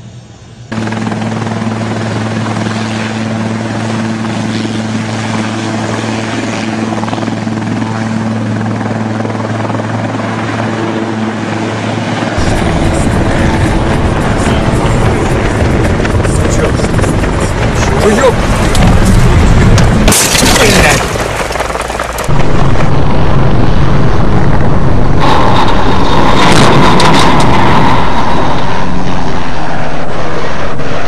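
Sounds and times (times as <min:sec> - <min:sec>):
helicopter droning hum: 0:00.0 - 0:31.0
loud rough noise: 0:12.4 - 0:31.0.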